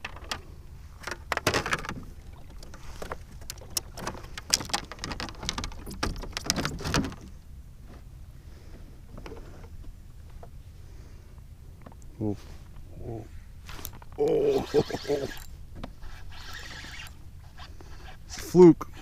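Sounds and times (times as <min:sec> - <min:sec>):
fishing gear clicking and rattling: 0:00.0 - 0:07.4, 0:13.7 - 0:19.0.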